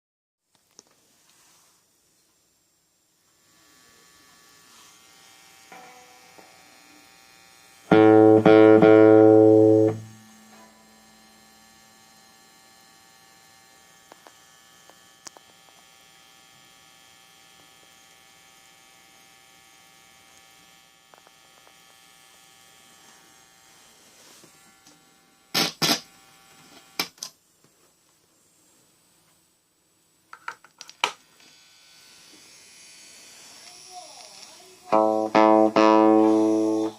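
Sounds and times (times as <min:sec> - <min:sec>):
faint amplifier mains buzz: 0:00.4 - 0:36.9
loud buzz with low hum: 0:03.4 - 0:27.0, 0:31.5 - 0:36.9.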